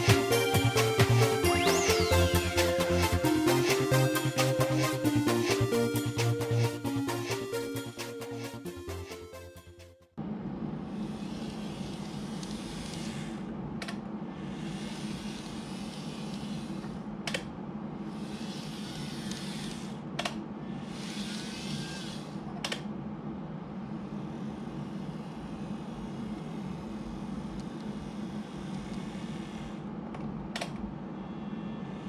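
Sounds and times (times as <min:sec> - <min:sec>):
model train motor humming: 0:10.9 - 0:13.4, 0:14.3 - 0:17.0, 0:18.1 - 0:20.0, 0:20.7 - 0:22.4.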